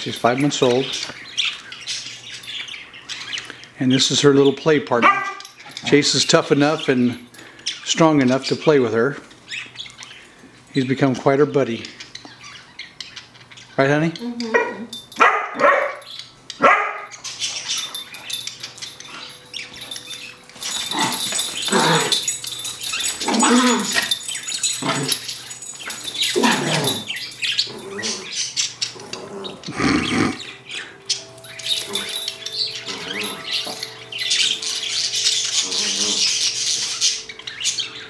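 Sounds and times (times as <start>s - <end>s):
dogs barking and yapping: 4.9s - 7.8s, 14.2s - 38.0s.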